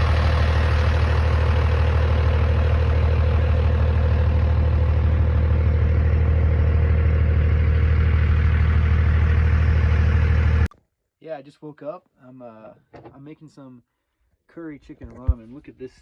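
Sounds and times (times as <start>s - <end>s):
road noise: 0.0s - 10.7s
truck engine droning: 0.0s - 10.7s.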